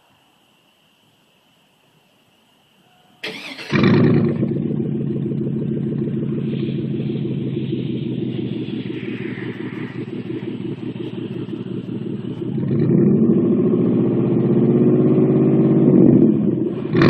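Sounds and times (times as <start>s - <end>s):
engine cranking: 3.2s - 4.4s
engine flaring and idling: 3.2s - 17.0s.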